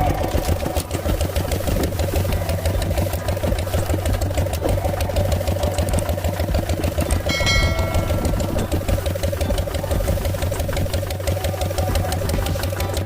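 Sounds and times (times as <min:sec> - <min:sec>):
small tractor motor clattering: 0:00.0 - 0:13.0
high-pitched tone: 0:07.3 - 0:09.0.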